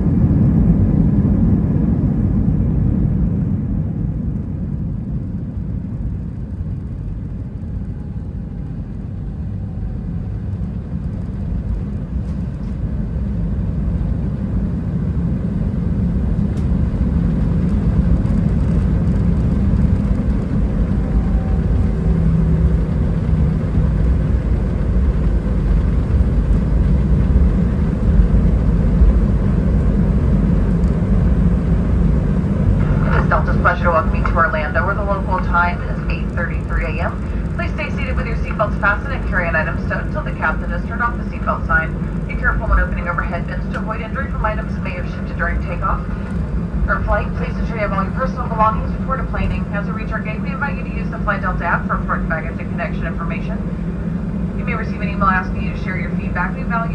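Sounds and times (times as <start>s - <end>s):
aircraft cabin low rumble: 0.0s - 56.9s.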